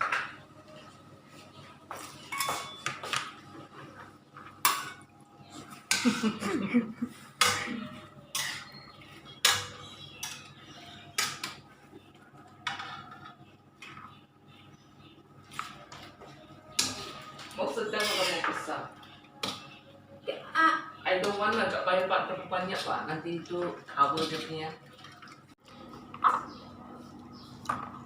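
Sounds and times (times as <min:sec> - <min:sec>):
kitchen utensils clinking: 0:02.2 - 0:03.3, 0:07.3 - 0:11.6, 0:16.7 - 0:19.8, 0:22.6 - 0:26.6.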